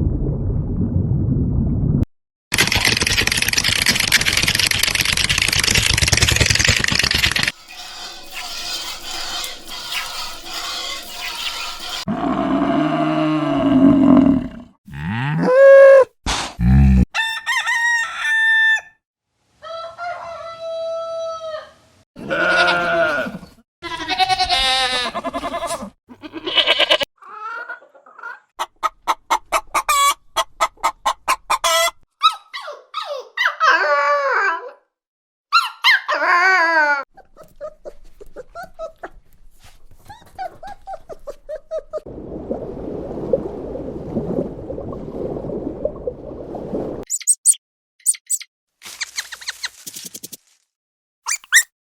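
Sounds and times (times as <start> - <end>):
rooster crowing: 17.2 - 19.0, 19.6 - 21.6
chickens clucking: 27.5 - 32.0.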